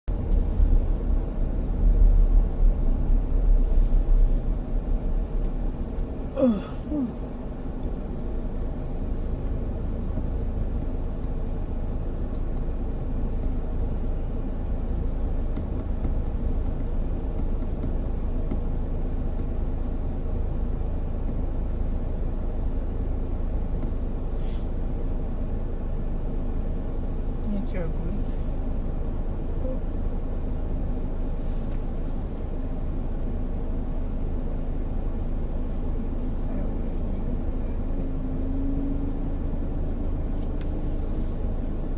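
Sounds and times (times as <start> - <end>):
diesel truck engine rumbling: 0.0 - 41.9.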